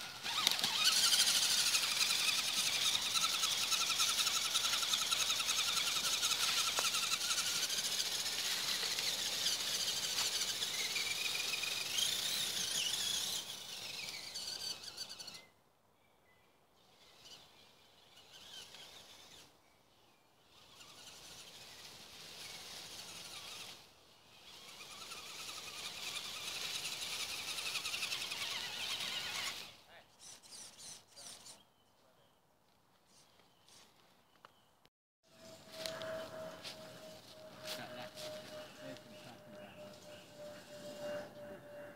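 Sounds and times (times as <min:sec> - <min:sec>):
electric motor whine: 0:00.0 - 0:15.5, 0:35.3 - 0:41.9
outdoor background noise: 0:00.0 - 0:41.9.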